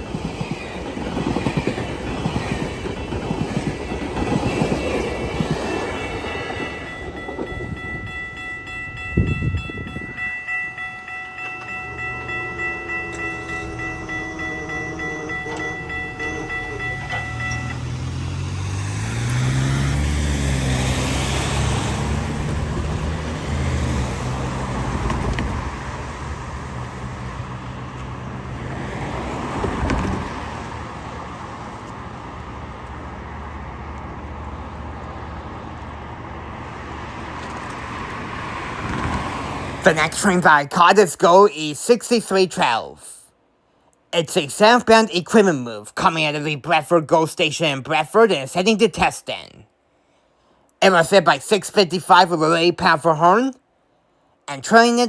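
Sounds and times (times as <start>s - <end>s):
train coaches clickety-clack: 0.0s - 36.0s, 36.7s - 41.3s
locomotive engine rumbling: 0.0s - 41.2s
train horn: 11.9s - 17.8s.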